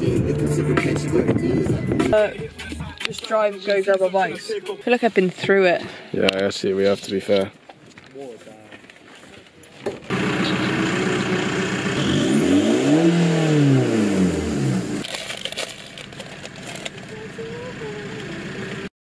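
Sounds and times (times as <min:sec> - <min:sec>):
car engine starting and idling: 0:10.1 - 0:18.9.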